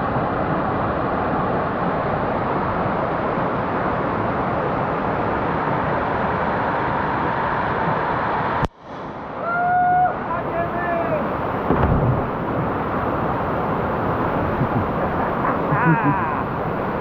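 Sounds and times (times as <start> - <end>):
waterfall rushing: 10.1 - 17.0.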